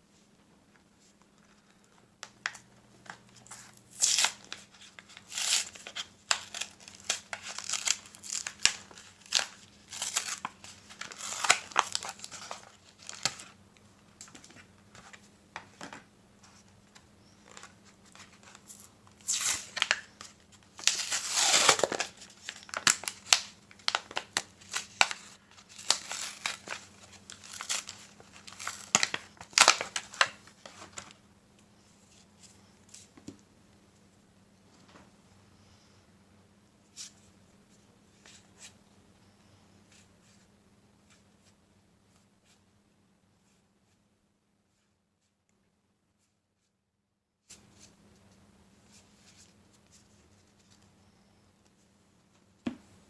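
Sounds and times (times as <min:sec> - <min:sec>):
foil wrappers crinkling: 0:02.4 - 0:13.6, 0:17.4 - 0:31.2
foil wrapper ripping: 0:03.9 - 0:13.5, 0:20.8 - 0:31.1.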